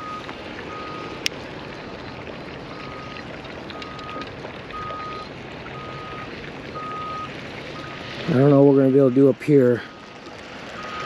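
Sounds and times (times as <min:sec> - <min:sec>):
backup alarm beeping: 0:00.0 - 0:01.2, 0:02.7 - 0:08.0, 0:10.8 - 0:11.0.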